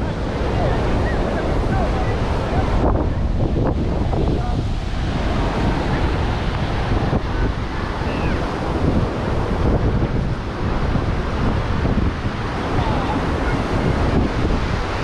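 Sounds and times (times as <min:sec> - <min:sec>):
faint voices: 0:00.0 - 0:08.6, 0:12.4 - 0:15.0
ocean surf washing ashore: 0:00.0 - 0:15.0
wind buffeting microphone: 0:00.0 - 0:15.0.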